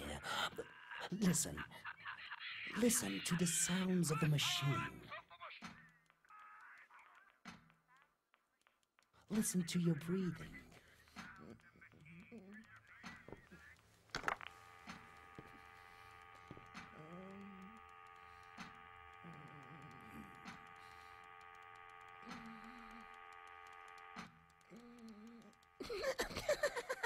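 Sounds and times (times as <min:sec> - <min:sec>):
machine electric hum: 0:09.3 - 0:27.0.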